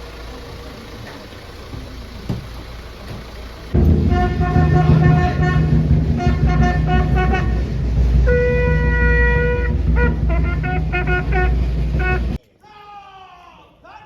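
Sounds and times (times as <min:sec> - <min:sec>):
steady low rumble: 0:03.7 - 0:12.4
bugle playing: 0:03.8 - 0:12.4.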